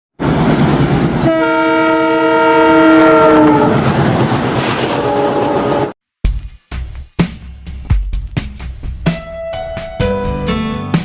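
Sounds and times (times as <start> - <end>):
passing train rumble: 0.2 - 6.0
train horn: 1.2 - 3.8, 4.8 - 6.0
drum-beat music: 6.2 - 11.0.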